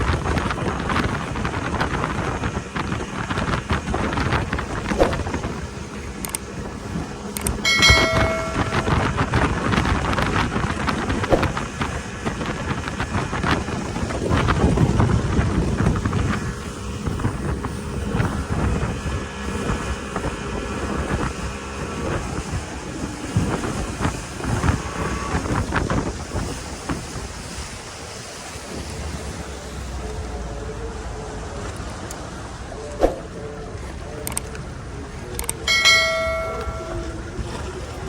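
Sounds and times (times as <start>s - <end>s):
wind buffeting microphone: 0.0s - 30.4s
speedboat engine: 0.0s - 38.0s.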